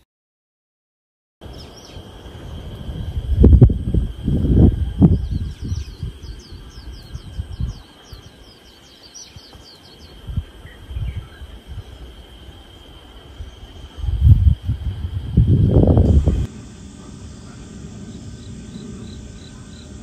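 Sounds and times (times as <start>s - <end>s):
high insect drone: 1.4s - 20.0s
songbird singing: 1.4s - 20.0s
low rumbling thumps: 14.2s - 20.0s.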